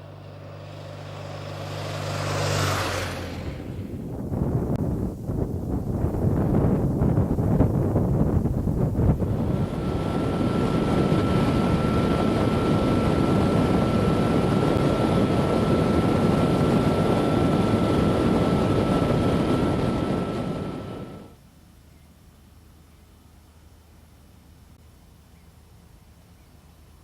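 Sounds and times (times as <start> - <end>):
motorcycle engine running: 0.0 - 21.3
steady high whine: 0.0 - 22.0
wind rush on microphone: 1.4 - 21.4.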